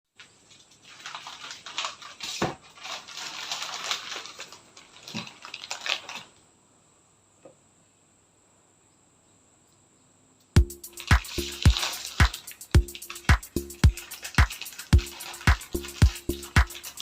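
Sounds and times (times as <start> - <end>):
rustling and crackling: 0.2 - 6.4, 11.0 - 17.0.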